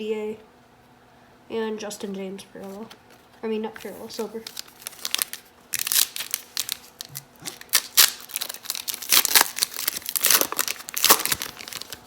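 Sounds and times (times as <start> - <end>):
plastic wrapper crinkling and tearing: 3.8 - 12.0.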